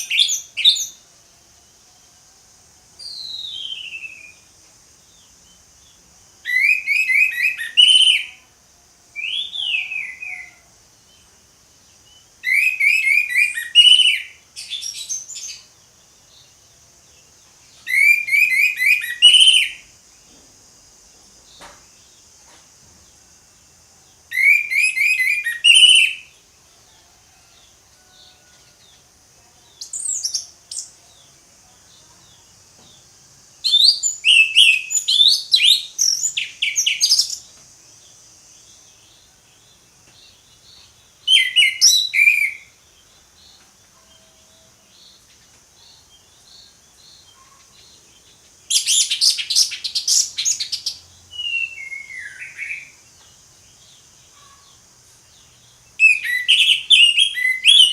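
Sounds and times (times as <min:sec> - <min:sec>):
steady high hiss: 0:00.0 - 0:57.9.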